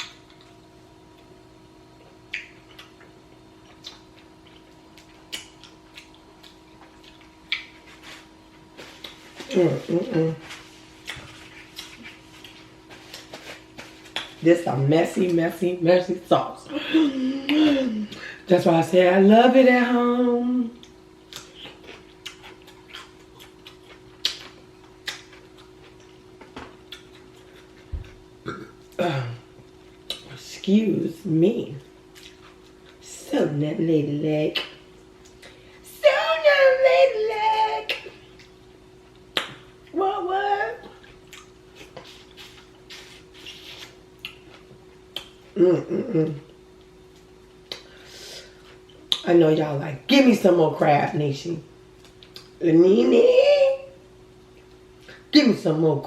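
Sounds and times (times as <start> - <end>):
faint steady hum: 0.0 - 56.0
mouth smacks while eating: 2.2 - 9.4, 11.0 - 14.4, 20.8 - 26.2, 26.9 - 28.7, 30.0 - 30.3, 40.8 - 45.5, 46.8 - 47.9, 48.9 - 49.3, 52.0 - 52.6.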